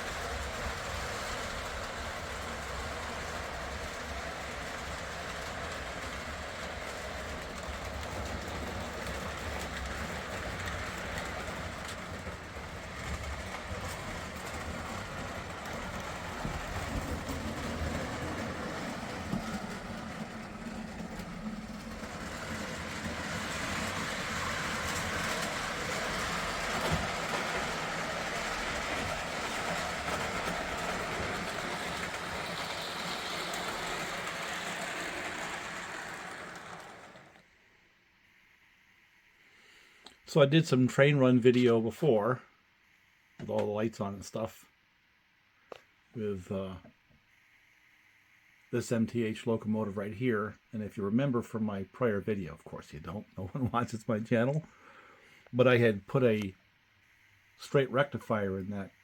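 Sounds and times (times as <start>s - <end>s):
model train wheels clicking: 0.0s - 37.6s.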